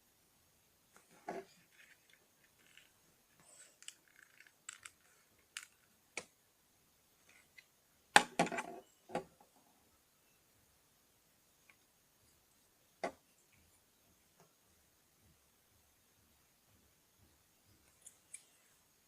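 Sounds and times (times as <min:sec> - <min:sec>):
plastic bricks clicking and clattering: 0:03.6 - 0:05.8.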